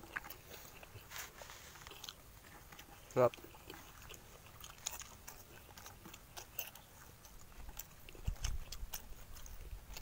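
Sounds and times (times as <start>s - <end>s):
people chewing and lip smacking: 0.0s - 10.0s
small crunches: 0.0s - 10.0s.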